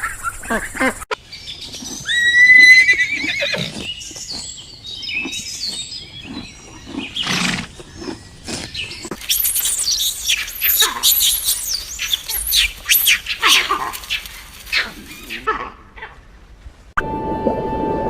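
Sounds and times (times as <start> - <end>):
horse whinnying: 2.0 - 3.9.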